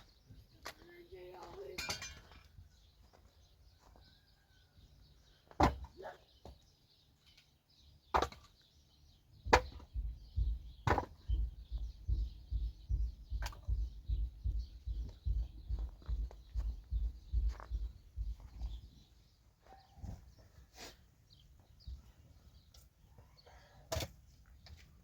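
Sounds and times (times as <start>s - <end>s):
dull low thumps: 9.4s - 19.0s.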